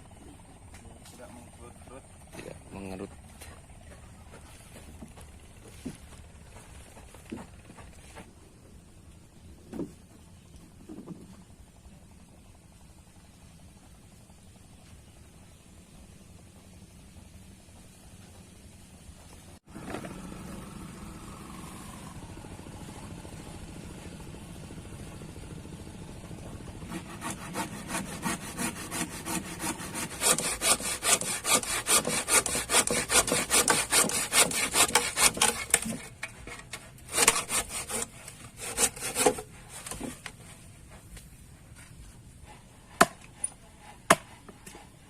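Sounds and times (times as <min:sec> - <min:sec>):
hand saw cutting: 0:26.7 - 0:40.6, 0:42.4 - 0:45.0.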